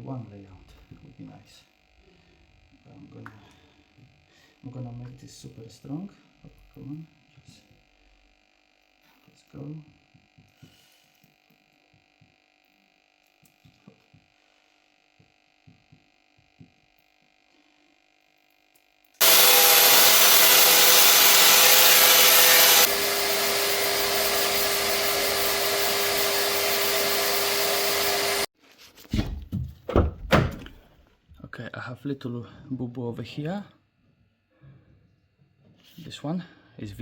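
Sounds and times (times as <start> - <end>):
electric power tool running: 19.2 - 28.5.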